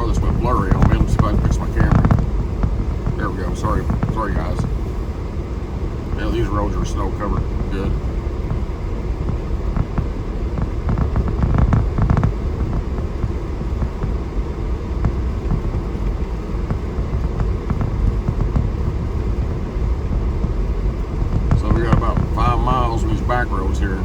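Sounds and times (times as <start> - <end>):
vehicle engine and tyres rumbling: 0.0 - 24.0.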